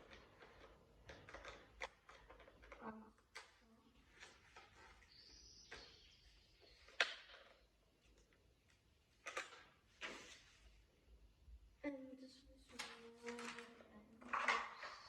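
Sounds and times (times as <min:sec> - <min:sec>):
plastic toy parts clicking: 0:00.0 - 0:04.9, 0:09.2 - 0:09.8, 0:12.7 - 0:15.0.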